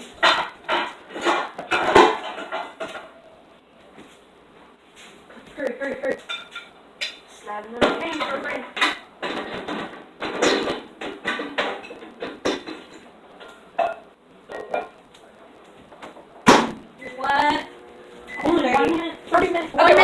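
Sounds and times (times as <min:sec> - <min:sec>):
dishes and cutlery clattering: 0:00.2 - 0:03.1, 0:06.2 - 0:06.7, 0:08.0 - 0:15.0.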